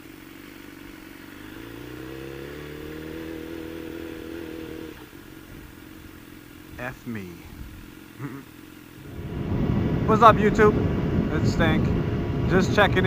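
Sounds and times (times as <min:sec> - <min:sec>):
motorcycle engine pulling: 0:00.8 - 0:09.0.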